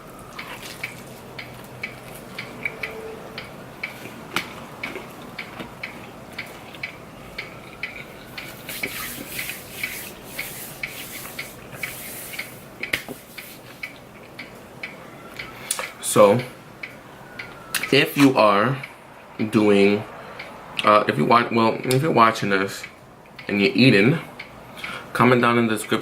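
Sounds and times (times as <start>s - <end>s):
person chewing food: 0.2s - 16.0s.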